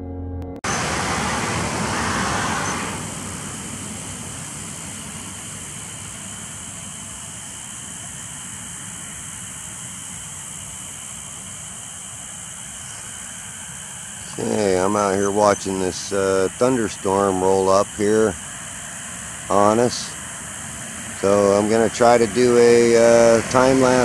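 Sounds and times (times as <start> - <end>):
car going by: 0.6 - 6.0, 21.6 - 24.0
outdoor traffic hiss: 0.6 - 24.0.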